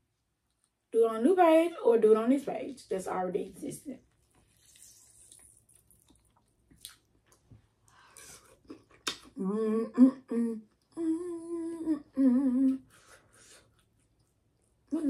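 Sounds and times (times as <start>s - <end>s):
chewing and mouth clicks: 4.1s - 9.3s, 13.6s - 14.8s
woman humming: 9.3s - 12.9s.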